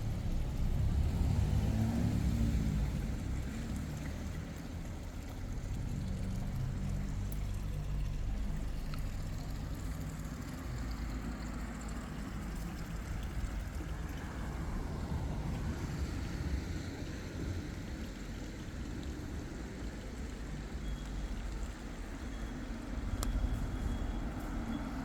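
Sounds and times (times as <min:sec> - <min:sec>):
outdoor noise: 0:00.0 - 0:25.0
vehicle engine rumbling: 0:00.0 - 0:25.0.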